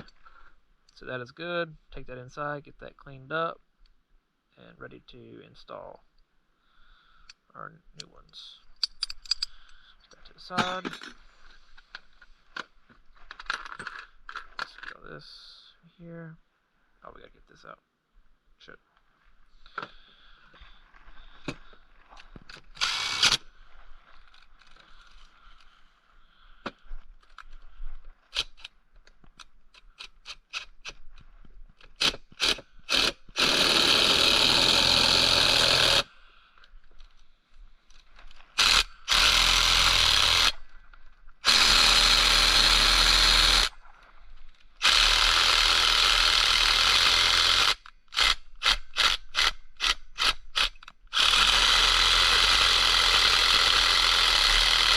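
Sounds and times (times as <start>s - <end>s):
clicks and knocks of tools: 8.8s - 12.7s
handheld power tool running: 22.8s - 23.4s, 32.0s - 36.1s, 38.6s - 40.6s, 41.4s - 43.7s, 44.8s - 54.9s.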